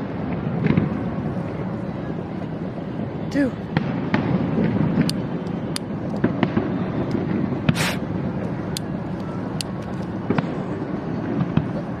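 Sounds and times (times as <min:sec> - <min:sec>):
firework cracks and pops: 0:00.0 - 0:01.2, 0:03.7 - 0:12.0
rumble of firework bursts: 0:00.0 - 0:12.0
short firework hiss: 0:07.6 - 0:08.1.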